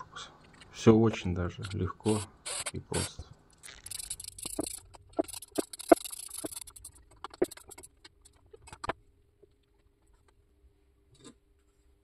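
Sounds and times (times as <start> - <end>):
scraping of parts: 3.6 - 8.9
hand tools clicking and knocking: 3.8 - 8.9.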